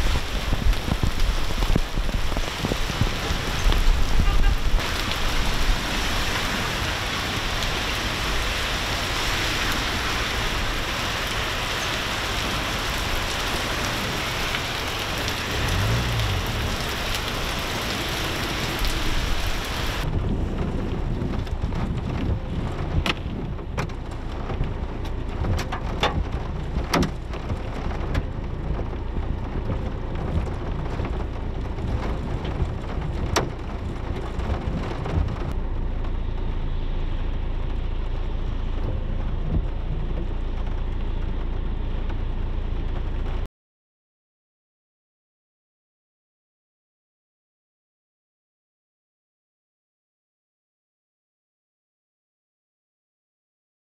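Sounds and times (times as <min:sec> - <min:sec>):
heavy rain and hail: 0:00.0 - 0:43.4.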